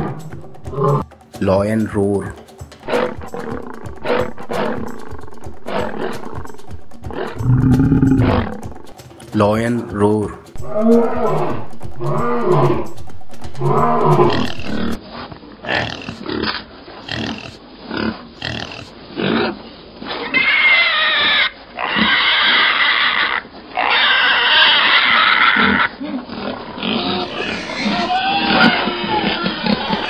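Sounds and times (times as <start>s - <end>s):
lion roaring: 0.0s - 1.0s, 2.8s - 9.0s, 10.5s - 15.0s, 25.3s - 30.0s
pigs grunting: 0.0s - 1.0s, 2.8s - 9.0s, 10.5s - 15.0s, 15.6s - 30.0s
pigs squealing: 0.0s - 1.0s, 2.8s - 8.9s, 10.6s - 15.0s, 15.7s - 30.0s.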